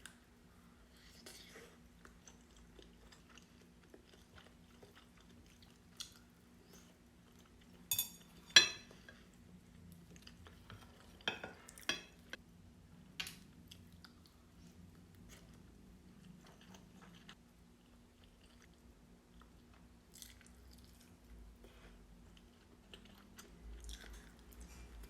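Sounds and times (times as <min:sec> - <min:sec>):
quiet chewing: 0:00.0 - 0:07.9, 0:08.8 - 0:12.4, 0:13.4 - 0:25.0
utensils clinking against dish: 0:07.9 - 0:08.9.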